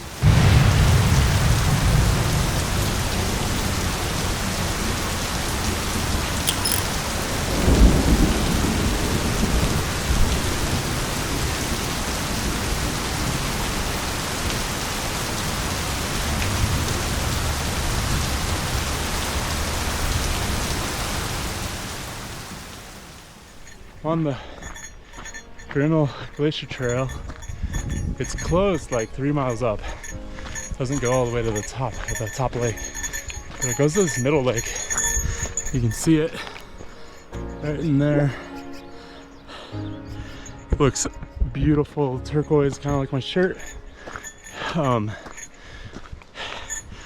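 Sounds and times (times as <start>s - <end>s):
heavy rain falling: 0.0s - 6.4s, 7.0s - 23.5s.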